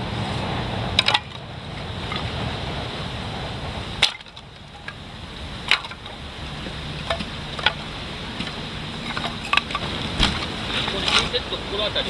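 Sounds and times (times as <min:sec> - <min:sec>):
steady background hiss: 0:00.0 - 0:12.0
hard objects clinking: 0:04.0 - 0:05.0, 0:05.6 - 0:11.4.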